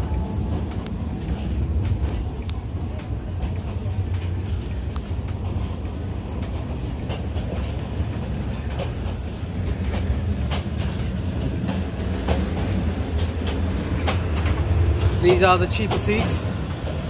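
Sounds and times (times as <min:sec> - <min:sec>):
train rumble: 0:00.0 - 0:17.0
train wheels clicking and knocking: 0:00.0 - 0:17.0.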